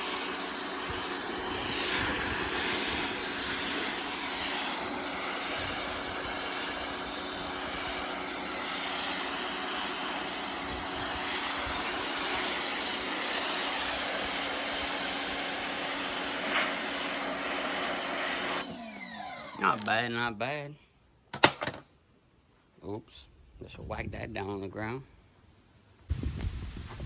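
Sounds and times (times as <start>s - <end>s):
pressure washer jet hissing: 0.0s - 19.6s
motor hum: 0.0s - 19.9s.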